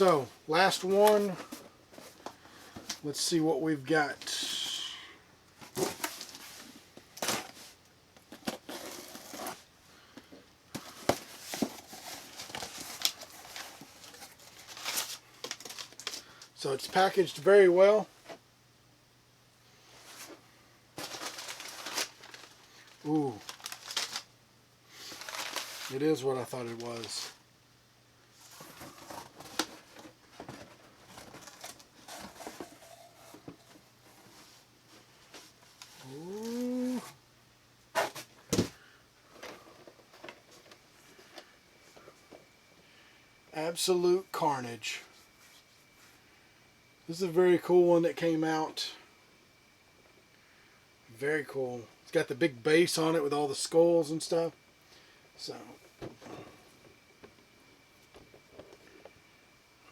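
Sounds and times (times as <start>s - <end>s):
packing material crinkling: 11.0s - 16.5s, 21.0s - 24.3s, 25.0s - 27.4s.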